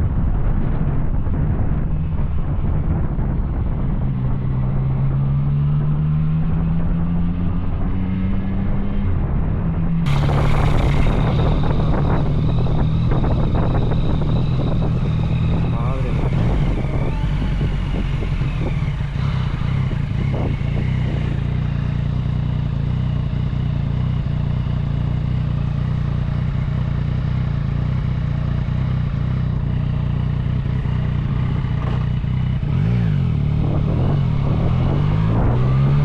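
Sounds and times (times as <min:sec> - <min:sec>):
motorcycle engine running: 0:10.1 - 0:36.0.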